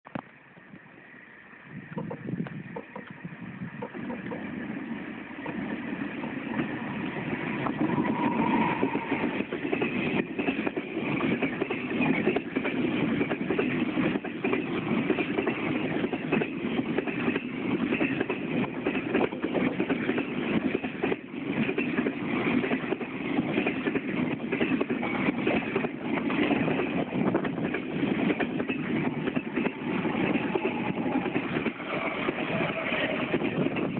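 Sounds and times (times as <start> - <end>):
freight train rumbling past: 0.4 - 33.9
wheels clicking over rail joints: 7.5 - 33.9.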